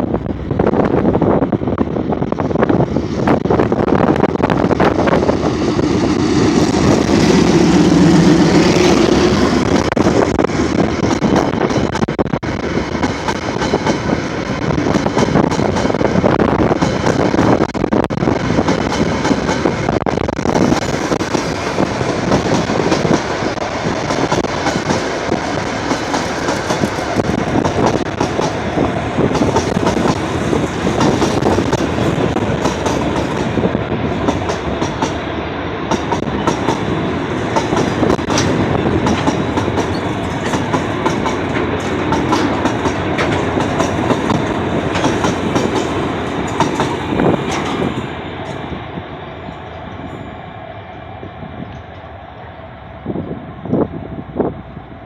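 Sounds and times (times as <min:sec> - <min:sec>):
train rumbling: 0:00.0 - 0:55.0
train wheels clattering: 0:18.6 - 0:35.2, 0:35.9 - 0:48.7.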